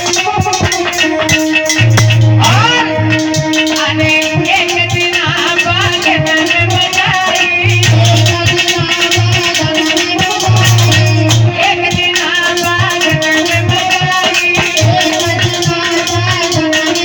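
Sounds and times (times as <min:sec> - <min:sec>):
rattling percussion: 0:00.0 - 0:17.0
low drum strokes: 0:01.8 - 0:03.4.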